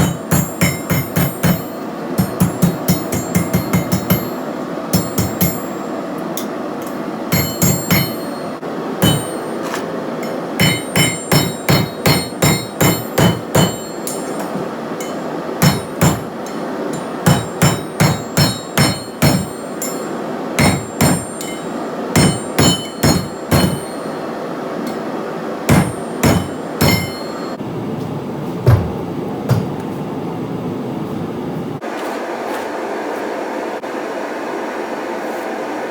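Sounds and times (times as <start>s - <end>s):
hammer striking steel on anvil: 0.0s - 27.6s.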